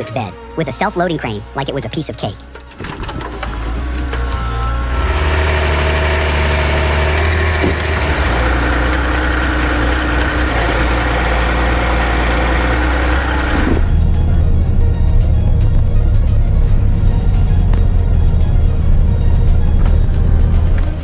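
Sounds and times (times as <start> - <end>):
diesel truck engine running: 2.4 - 21.0.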